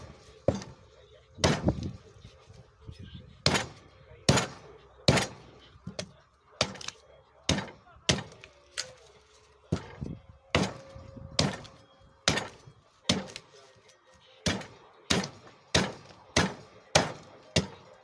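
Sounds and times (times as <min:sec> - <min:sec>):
axe chopping wood: 0:00.0 - 0:00.8, 0:01.4 - 0:02.0, 0:03.4 - 0:08.5, 0:09.7 - 0:13.5, 0:14.4 - 0:17.8.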